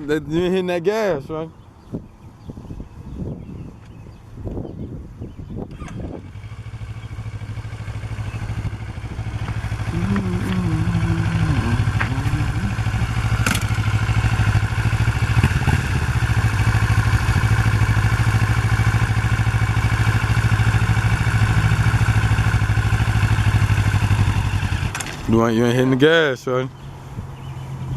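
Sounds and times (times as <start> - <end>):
motorcycle engine at low revs: 3.9 - 26.0.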